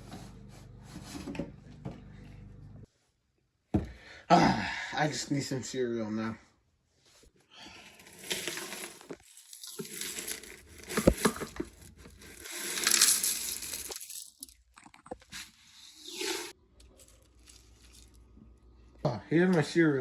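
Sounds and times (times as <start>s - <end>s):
cereal packaging crinkling: 8.0s - 15.1s, 16.8s - 18.4s.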